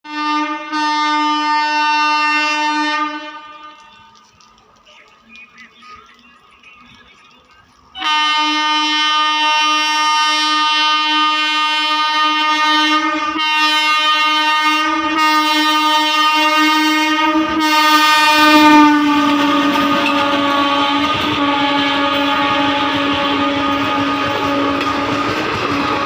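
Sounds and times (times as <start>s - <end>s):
locomotive horn: 0.0s - 4.3s, 7.9s - 26.0s
train wheels rumbling and clattering: 3.3s - 8.8s, 15.0s - 26.0s.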